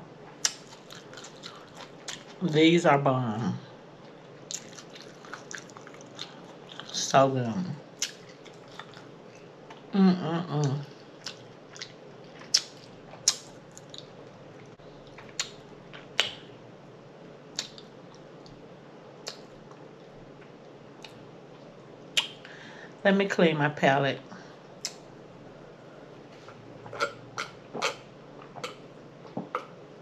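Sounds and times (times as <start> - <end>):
person chewing with lip smacks: 0.4 - 2.4, 4.4 - 7.0, 8.0 - 9.9, 10.6 - 16.4, 17.5 - 18.6, 19.2 - 19.9.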